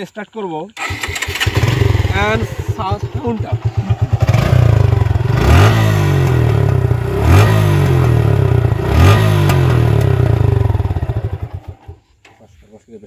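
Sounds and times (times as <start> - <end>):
motorcycle engine idling and revving: 0.8 - 12.3.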